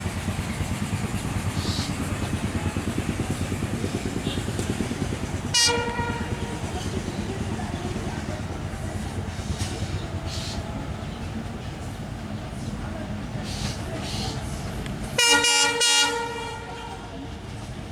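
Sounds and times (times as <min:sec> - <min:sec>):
diesel locomotive throbbing: 0:00.0 - 0:17.9
train horn blast: 0:05.5 - 0:06.8, 0:15.2 - 0:17.2.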